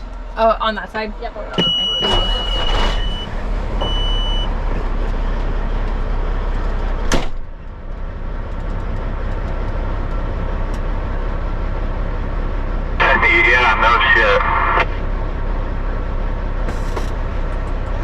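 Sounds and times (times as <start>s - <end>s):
truck engine running: 0.0s - 18.0s
sharp clunk: 7.0s - 7.5s.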